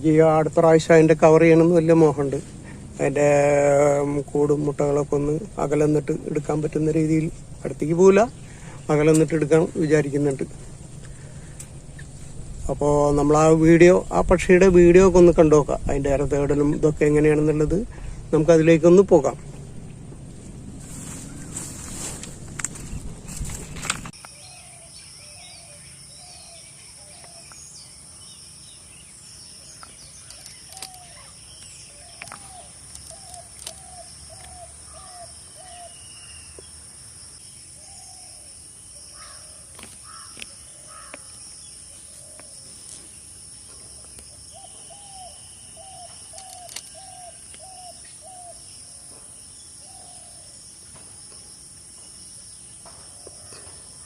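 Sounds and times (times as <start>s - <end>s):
insect drone: 0.0s - 54.0s
bird calling: 16.6s - 36.8s, 37.4s - 50.6s.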